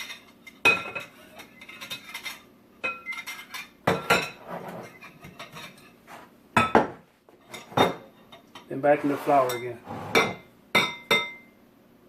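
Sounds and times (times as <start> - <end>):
utensil scraping bowl: 8.7 - 10.5.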